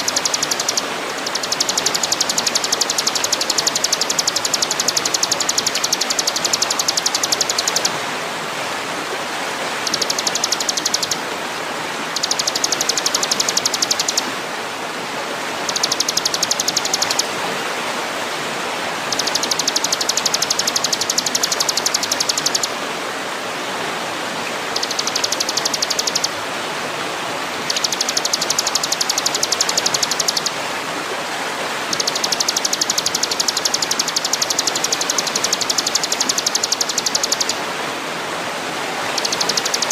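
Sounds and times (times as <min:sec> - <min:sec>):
high ticking bird trill: 0:00.0 - 0:08.0, 0:09.8 - 0:11.2, 0:12.1 - 0:14.3, 0:15.6 - 0:17.3, 0:19.0 - 0:22.7, 0:24.8 - 0:26.4, 0:27.6 - 0:30.6, 0:31.9 - 0:37.6, 0:39.1 - 0:39.9
steady rushing hiss: 0:00.0 - 0:14.4.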